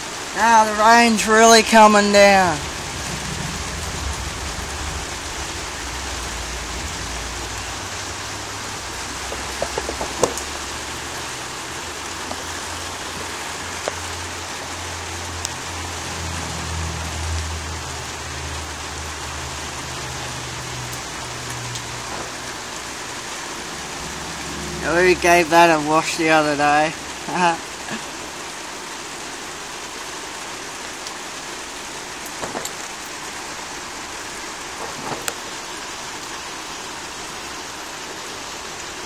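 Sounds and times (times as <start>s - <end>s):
heavy rain pouring: 0.0s - 39.0s
low rumble: 2.6s - 11.1s.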